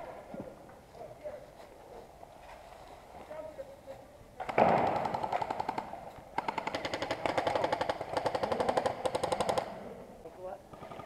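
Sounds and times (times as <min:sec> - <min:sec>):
airsoft gun firing on full auto: 0:04.5 - 0:09.8.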